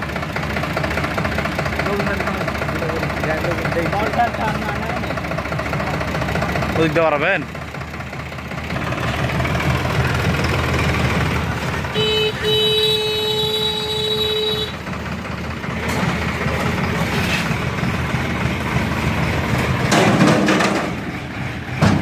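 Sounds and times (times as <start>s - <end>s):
tractor engine running: 0.0s - 22.0s
vehicle horn blast: 11.9s - 14.8s.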